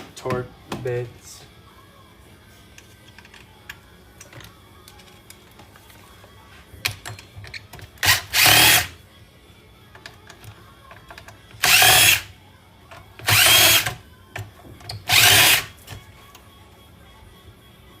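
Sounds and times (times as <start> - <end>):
power drill whining: 8.0 - 8.9, 11.6 - 12.3, 13.2 - 14.0, 15.0 - 15.8.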